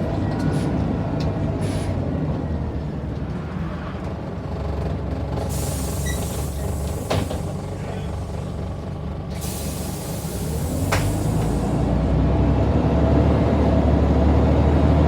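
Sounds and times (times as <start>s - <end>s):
bus diesel engine drone: 0.0s - 15.0s
hiss: 5.5s - 7.6s, 9.4s - 11.9s.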